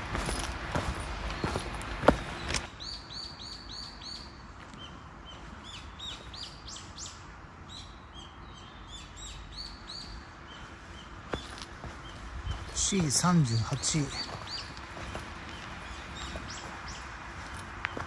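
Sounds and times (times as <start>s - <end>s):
small birds chirping: 0.1s - 18.0s.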